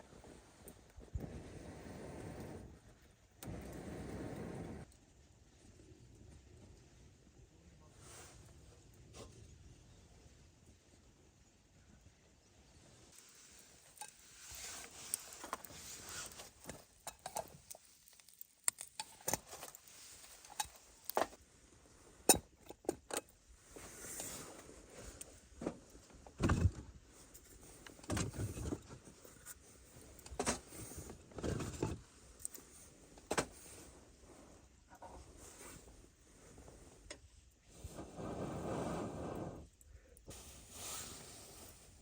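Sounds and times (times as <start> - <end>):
rustling scrapes: 13.2 - 18.4, 37.7 - 39.7, 40.3 - 42.0.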